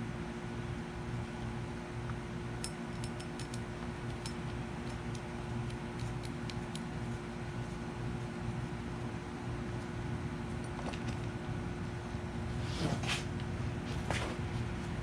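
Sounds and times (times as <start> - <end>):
steady low hum: 0.0 - 15.0
clicks and taps of small parts: 2.6 - 6.9.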